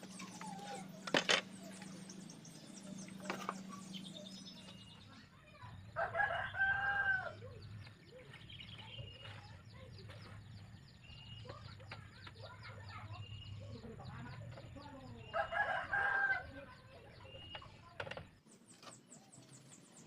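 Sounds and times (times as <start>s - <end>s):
rooster crowing: 6.0s - 7.4s, 15.3s - 16.4s.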